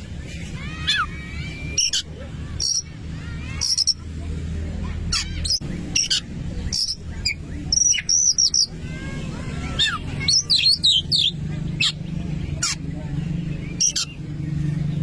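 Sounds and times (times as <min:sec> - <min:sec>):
bird singing whistled notes: 0:05.5 - 0:08.7.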